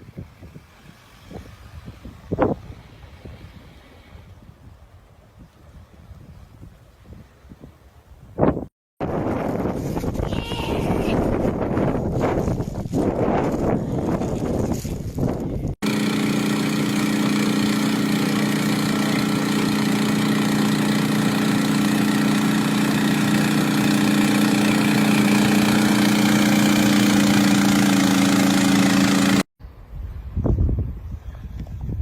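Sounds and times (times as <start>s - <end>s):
gusty wind: 0.0s - 15.8s, 29.6s - 32.0s
engine idling: 15.8s - 29.4s.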